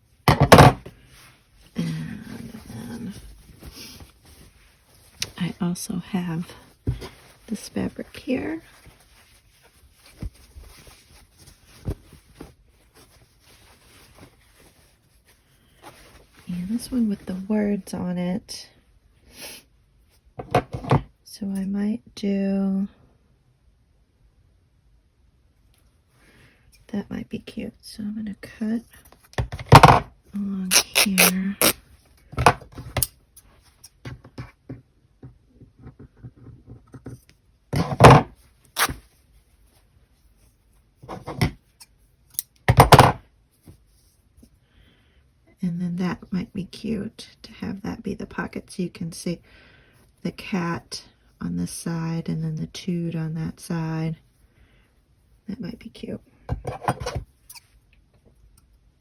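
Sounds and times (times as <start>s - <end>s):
handling fabric: 0.0s - 17.8s.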